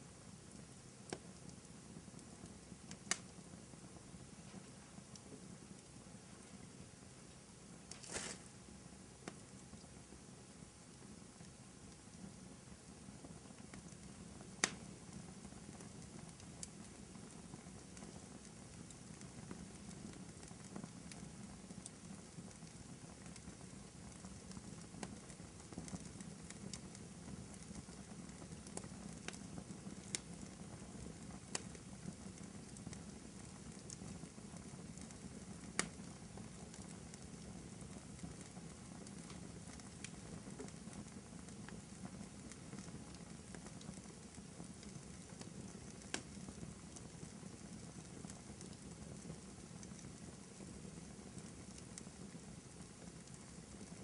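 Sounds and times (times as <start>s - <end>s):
low rumble of flames: 0.0s - 54.0s
wood fire crackling: 0.0s - 54.0s.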